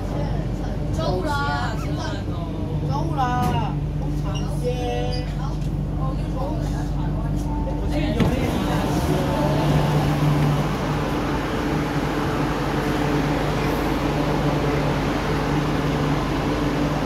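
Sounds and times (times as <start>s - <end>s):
wheels rumbling on rail: 5.2s - 17.0s
train traction motor hum: 7.7s - 17.0s.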